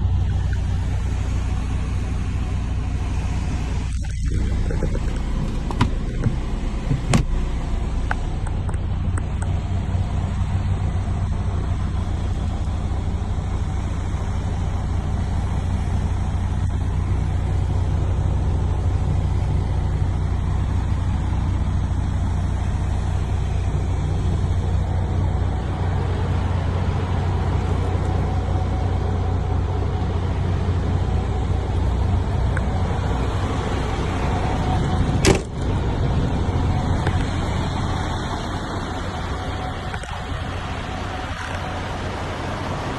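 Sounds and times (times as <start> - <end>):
diesel truck engine rumbling: 0.0 - 42.9.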